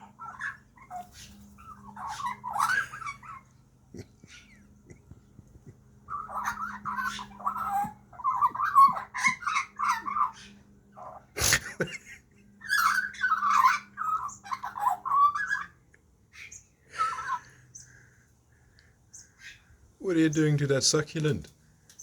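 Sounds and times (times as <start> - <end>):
magpie squawky chatter: 0.0 - 3.6, 4.2 - 4.8, 6.0 - 11.4, 12.6 - 17.9.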